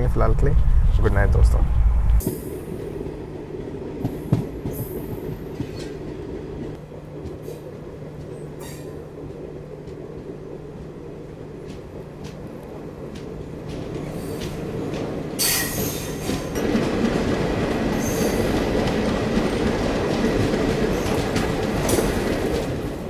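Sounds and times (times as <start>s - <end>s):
low hum: 0.0s - 4.0s
train coaches rumbling: 0.0s - 23.0s.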